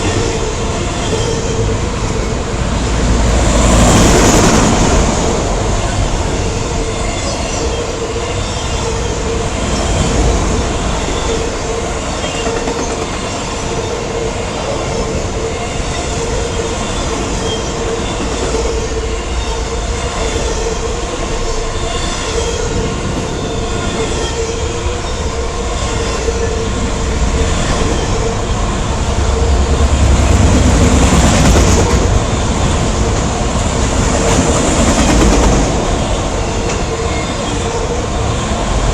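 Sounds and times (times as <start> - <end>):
freight cars rumbling on rails: 0.0 - 38.9
wheels clickety-clack: 12.1 - 13.9, 29.1 - 37.6.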